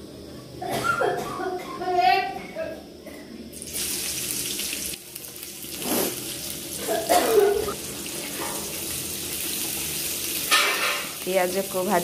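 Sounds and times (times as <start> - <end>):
food sizzling in hot oil: 3.5 - 12.0.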